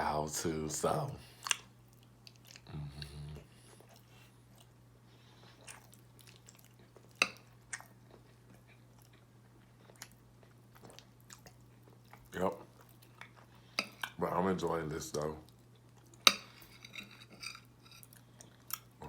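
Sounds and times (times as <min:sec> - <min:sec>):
person chewing food: 0:01.2 - 0:14.2, 0:15.4 - 0:19.0
closed-mouth hum: 0:02.4 - 0:05.8.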